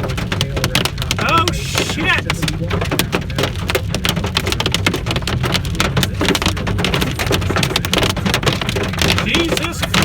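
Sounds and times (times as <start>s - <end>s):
hail pelting a car windshield: 0.0s - 10.0s.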